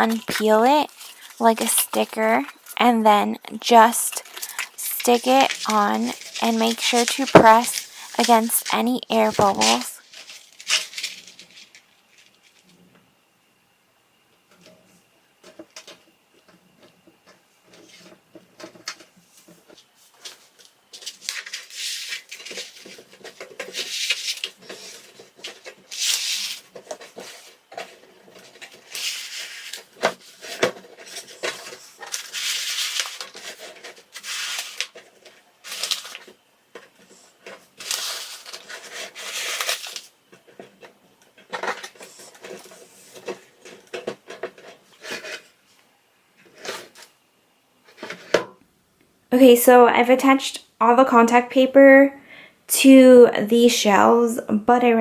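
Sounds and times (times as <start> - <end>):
contact paper crinkling: 0.0 - 2.8, 4.1 - 12.8, 17.7 - 45.8.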